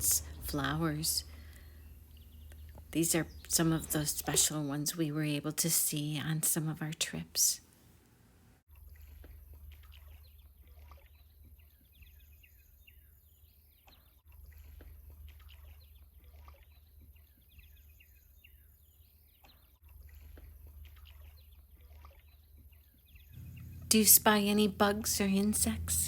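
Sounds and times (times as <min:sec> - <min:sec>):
low steady rumble: 0:00.0 - 0:04.3, 0:23.4 - 0:26.0
small birds chirping: 0:00.0 - 0:04.9, 0:08.9 - 0:26.0.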